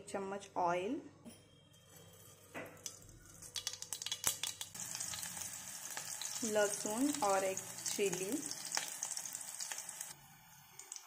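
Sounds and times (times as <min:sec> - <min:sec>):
garlic frying in hot oil: 0:02.8 - 0:11.0.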